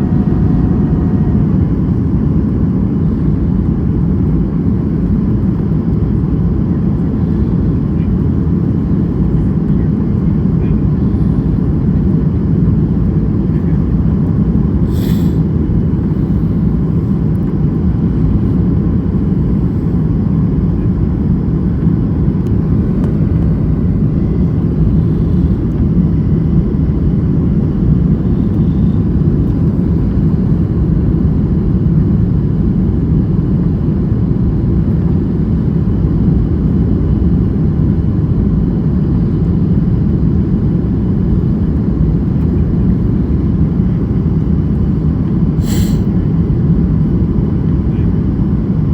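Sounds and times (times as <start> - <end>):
rushing air: 0.0 - 3.2, 45.6 - 46.1
airliner engines rumbling: 0.0 - 48.9.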